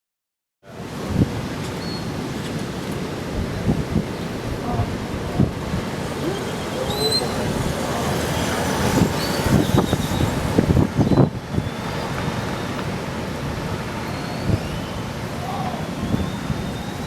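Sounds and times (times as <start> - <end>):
surf roaring: 0.7 - 17.0
short high whistles: 6.2 - 7.5, 14.0 - 17.0.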